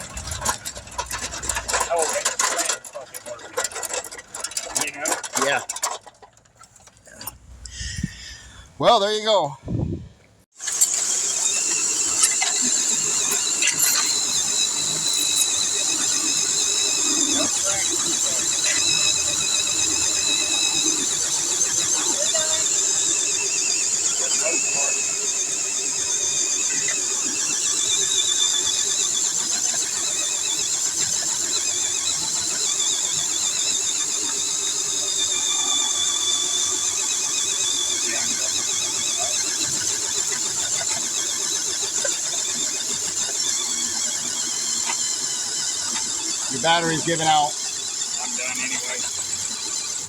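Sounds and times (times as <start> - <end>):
electric motor whining: 10.6 - 50.0.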